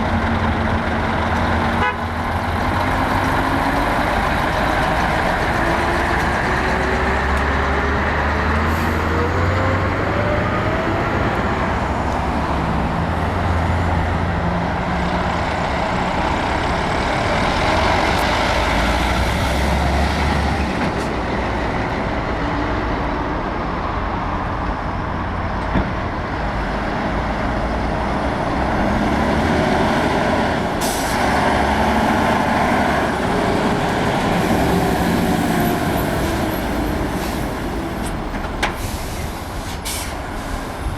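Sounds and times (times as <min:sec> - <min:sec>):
diesel trucks passing: 0:00.0 - 0:40.9
air brake hiss: 0:38.7 - 0:40.9.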